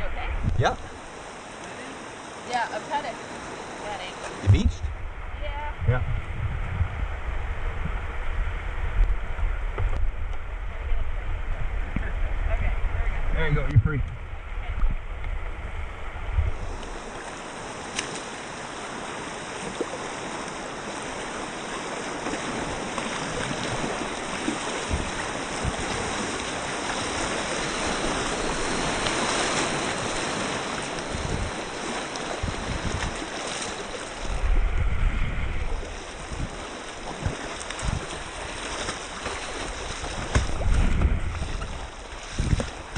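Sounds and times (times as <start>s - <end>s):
low rumbles: 0.0s - 1.1s, 4.4s - 17.1s
rushing river water: 0.0s - 42.9s.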